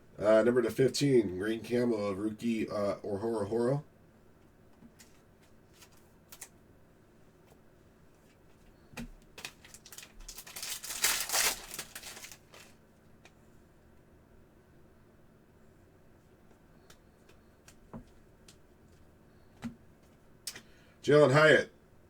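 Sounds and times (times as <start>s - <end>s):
card packs crinkling and rustling: 9.0s - 12.8s.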